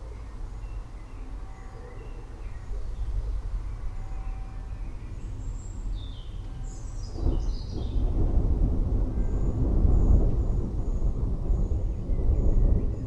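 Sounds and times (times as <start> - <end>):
rolling thunder rumbling: 7.2 - 13.0.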